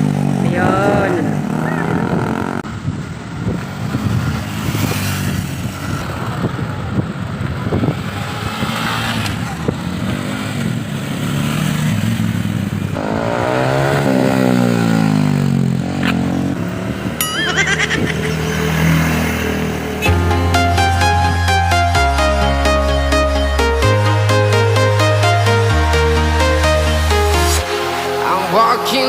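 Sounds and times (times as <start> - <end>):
motorcycle engine running: 0.0 - 20.2.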